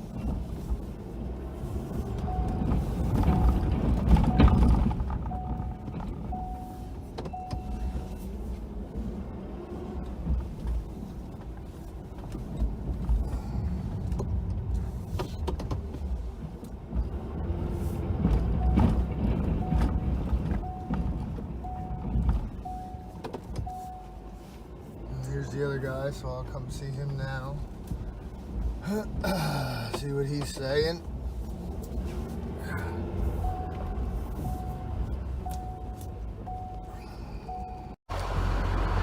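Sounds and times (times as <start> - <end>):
truck engine running: 0.0 - 9.4, 16.2 - 24.6, 32.3 - 39.0
backup alarm beeping: 2.2 - 8.3, 18.5 - 24.5, 33.4 - 38.0.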